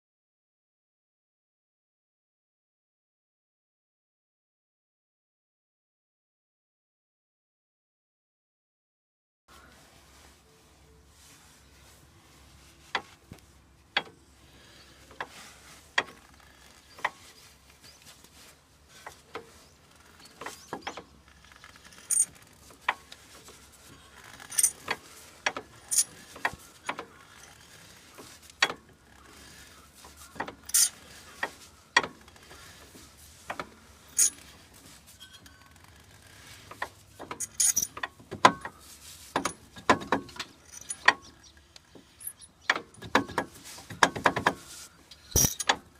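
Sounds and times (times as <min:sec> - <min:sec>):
metallic clinks of hand tools: 0:30.6 - 0:31.0, 0:37.4 - 0:38.7, 0:40.4 - 0:41.3, 0:45.2 - 0:45.8.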